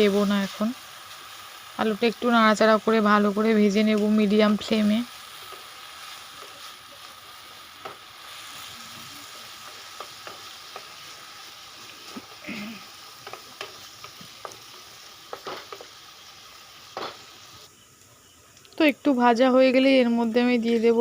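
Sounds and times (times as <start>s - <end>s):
potatoes sizzling in oil: 0.0s - 21.0s
spatula tapping pan: 7.8s - 8.1s, 9.6s - 11.1s, 13.2s - 14.7s, 15.3s - 16.0s.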